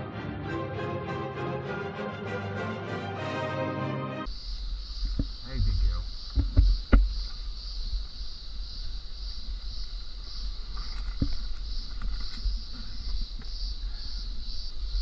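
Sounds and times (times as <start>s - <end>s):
insects chirping: 4.3s - 15.0s.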